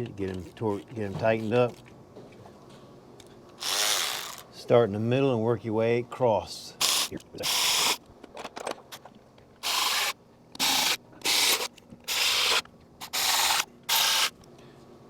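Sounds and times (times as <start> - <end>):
cordless electric ratchet running: 3.6 - 4.4, 6.8 - 8.0, 9.6 - 14.4.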